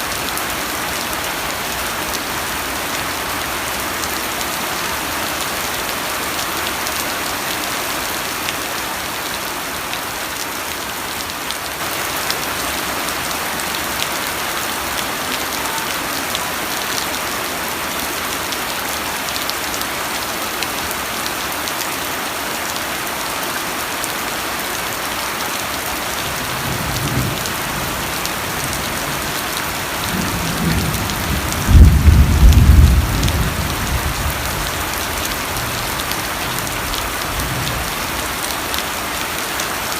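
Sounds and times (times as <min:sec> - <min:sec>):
steady rain falling: 0:00.0 - 0:39.9
thunder rumbling: 0:30.1 - 0:34.8.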